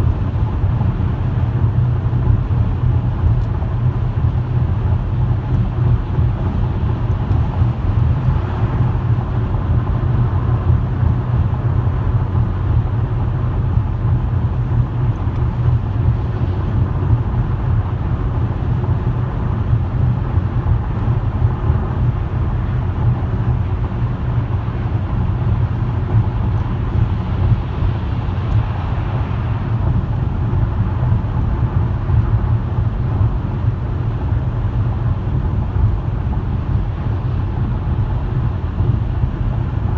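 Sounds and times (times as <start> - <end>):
car engine: 0.0 - 39.9
road and tyre noise: 0.0 - 39.9.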